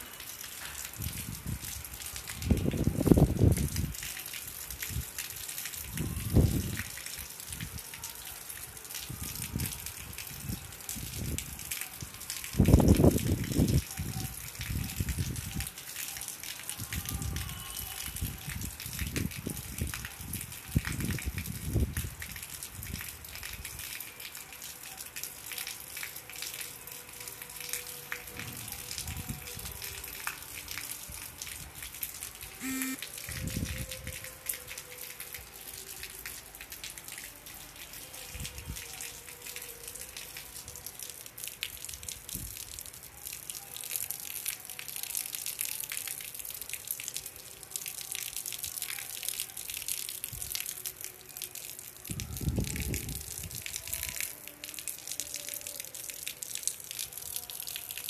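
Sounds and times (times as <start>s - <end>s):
rain on concrete roof: 0.0s - 58.0s
short pitched tone: 32.6s - 33.0s.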